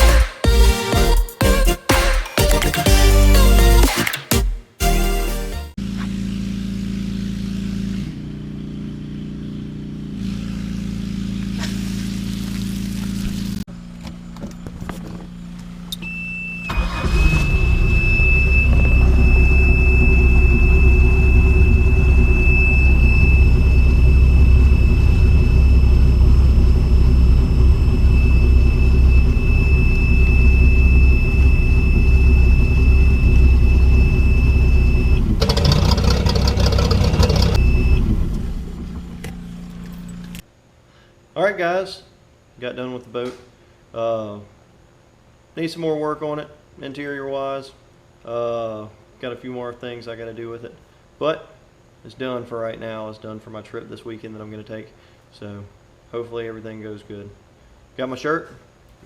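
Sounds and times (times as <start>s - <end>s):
background music: 0.0s - 5.8s
steady high beep: 17.3s - 38.1s
boat engine running: 17.8s - 40.4s.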